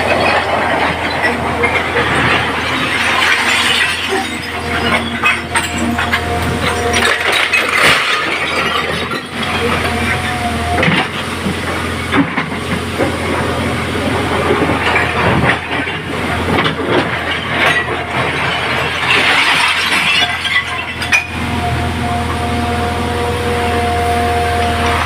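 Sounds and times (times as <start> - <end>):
stones clattering against metal: 0.0 - 10.3, 14.7 - 21.4
heavy machine engine running: 0.0 - 25.0.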